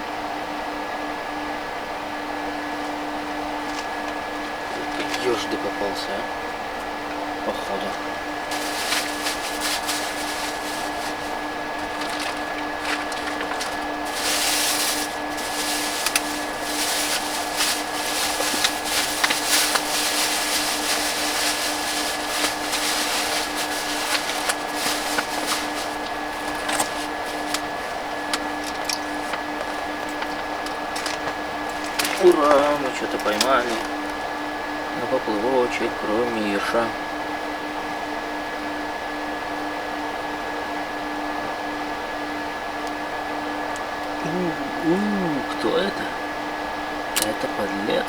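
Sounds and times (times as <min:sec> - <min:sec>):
constant high whine: 0:00.0 - 0:48.0
steady hum: 0:01.3 - 0:48.0
tent fabric clicking and rustling: 0:08.4 - 0:34.3.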